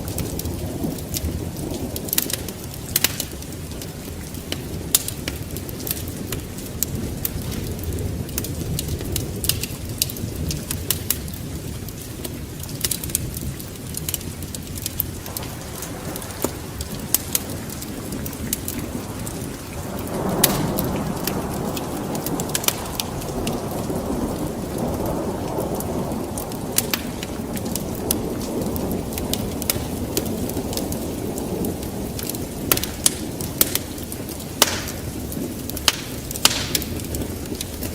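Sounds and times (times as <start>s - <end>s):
steady rain: 0.0s - 37.9s
thunder rumbling: 0.0s - 37.9s
sharp crackles and drops: 14.8s - 23.6s, 34.6s - 37.9s.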